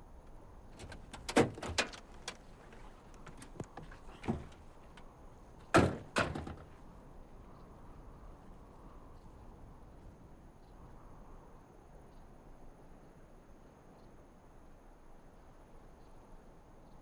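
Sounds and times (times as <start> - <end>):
car doors opening and slamming: 0.8 - 2.0, 5.7 - 6.6.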